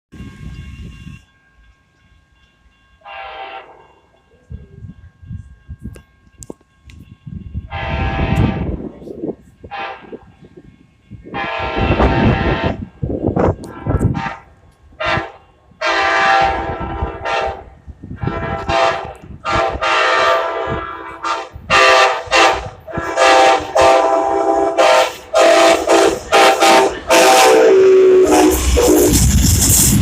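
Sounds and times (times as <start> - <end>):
low rumble of moving train: 0.1 - 30.0
locomotive air horn blasts: 3.0 - 3.9, 7.6 - 8.9, 9.6 - 10.3, 11.3 - 12.9, 13.6 - 29.8.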